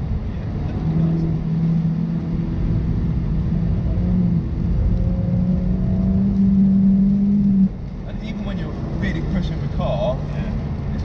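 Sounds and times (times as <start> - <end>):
car engine pulling under throttle: 0.0 - 11.0
tyre and road noise: 0.0 - 11.0.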